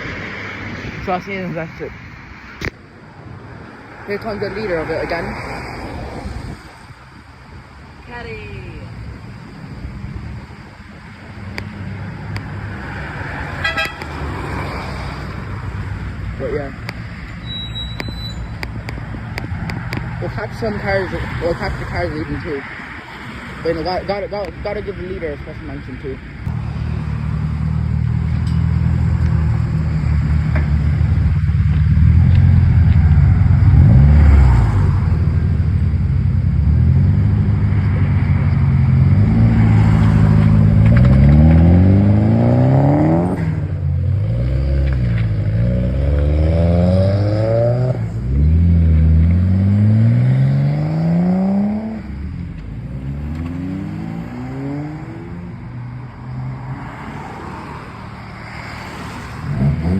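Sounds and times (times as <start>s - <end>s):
car engine revving: 23.4s - 59.9s.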